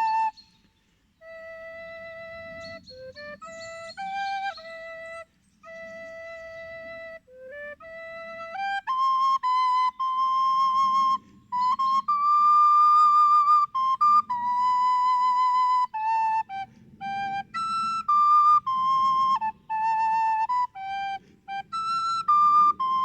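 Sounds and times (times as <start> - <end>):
slow flute melody: 0.0 - 23.0.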